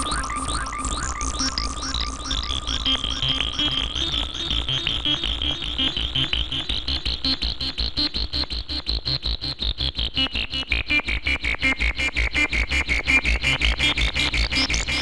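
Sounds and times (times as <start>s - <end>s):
synthesizer sequenced pattern: 0.0s - 8.1s
pulsing low bass: 0.0s - 11.2s.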